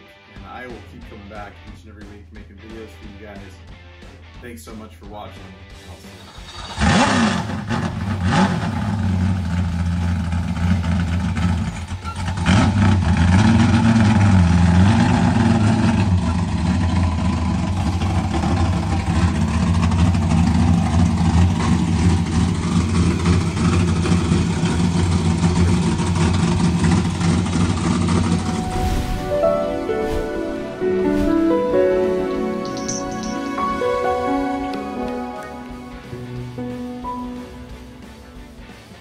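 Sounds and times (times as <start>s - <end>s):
car engine running and revving: 6.3s - 28.8s.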